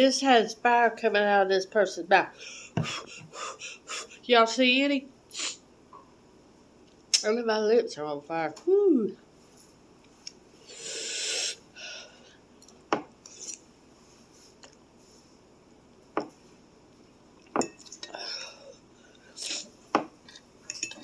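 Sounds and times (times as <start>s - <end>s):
utensil clinking on a dish: 20.7s - 21.0s.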